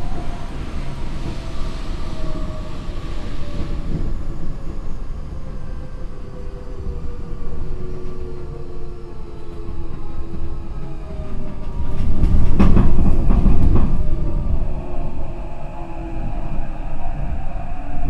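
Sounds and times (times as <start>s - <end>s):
wheels rumbling on rails: 0.0s - 18.0s.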